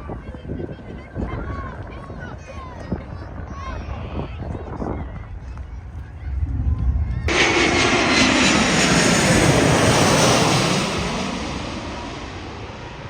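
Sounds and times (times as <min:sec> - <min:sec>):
jet airliner passing overhead: 0:04.9 - 0:13.0.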